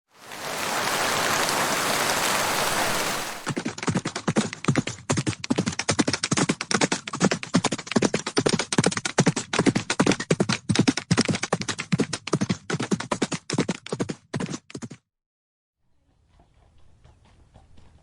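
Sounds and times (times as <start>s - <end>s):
steady hiss: 0.3s - 3.6s
horse hooves clattering: 2.8s - 14.1s, 16.1s - 18.0s.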